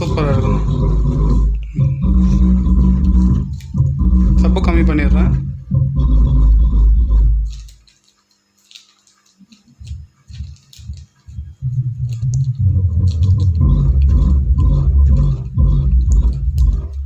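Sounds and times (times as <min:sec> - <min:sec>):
bass-heavy music: 0:00.0 - 0:07.8, 0:11.5 - 0:17.0.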